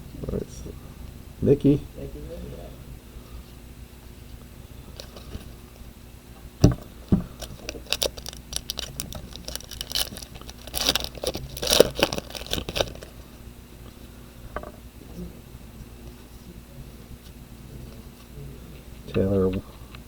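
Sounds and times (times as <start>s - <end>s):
knocks on a tabletop: 6.6s - 7.3s, 14.6s - 14.8s
foil wrapper crinkling: 7.3s - 13.2s.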